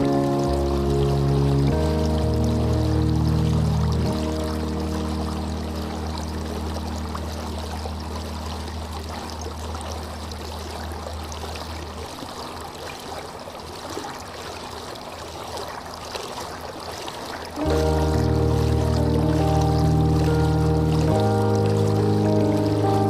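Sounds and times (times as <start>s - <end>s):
low held tone: 0.0s - 11.6s, 17.6s - 23.0s
water flowing and trickling: 0.0s - 23.0s.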